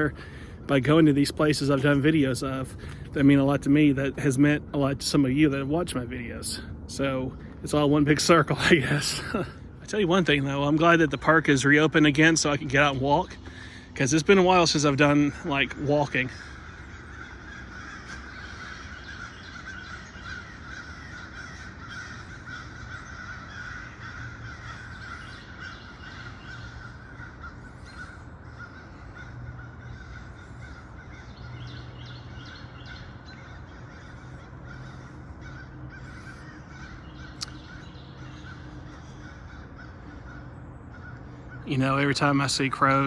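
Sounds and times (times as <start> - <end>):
crows cawing: 0.0 - 0.6, 12.3 - 43.0
high outdoor drone: 0.0 - 43.0.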